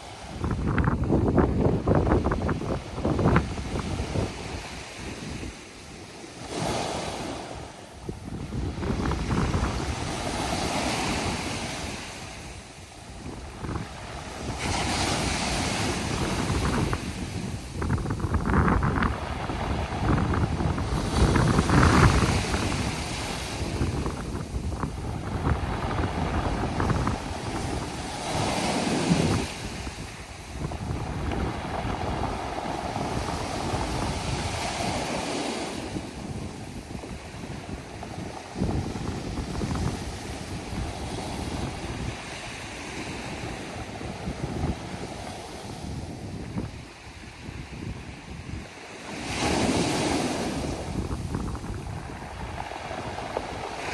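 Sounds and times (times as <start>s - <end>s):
waves over pebble beach: 0.0s - 53.9s
wind buffeting microphone: 0.0s - 53.9s.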